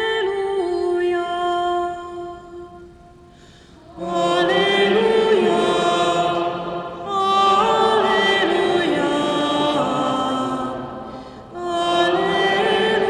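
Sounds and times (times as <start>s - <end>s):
liturgical chant singing: 3.8s - 13.0s.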